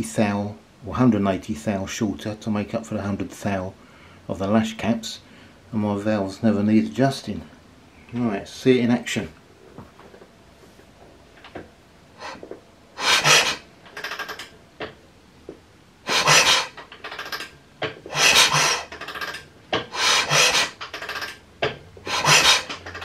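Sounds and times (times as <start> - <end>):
engine turning over with rasping scrapes: 13.0 - 14.5, 16.1 - 23.0.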